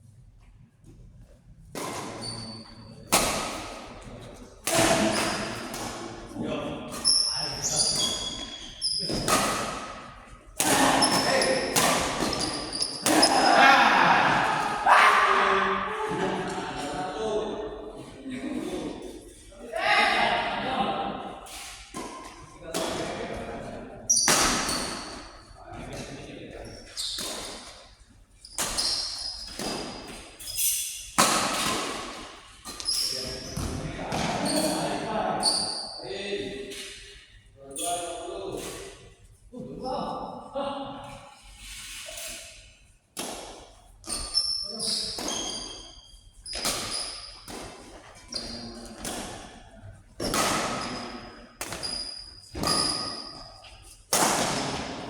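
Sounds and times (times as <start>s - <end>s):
shoe squeaks: 2.2s - 3.1s, 6.9s - 9.5s, 11.0s - 13.5s, 24.1s - 25.4s, 26.6s - 27.3s, 28.4s - 31.0s, 32.8s - 33.7s, 35.4s - 36.0s, 44.0s - 47.5s, 48.3s - 48.9s, 50.7s - 53.7s
rackets hitting shuttlecock: 7.8s - 13.6s, 24.2s - 25.0s, 28.6s - 33.0s, 43.2s - 44.4s, 46.5s - 49.6s, 50.2s - 53.4s, 54.1s - 55.0s.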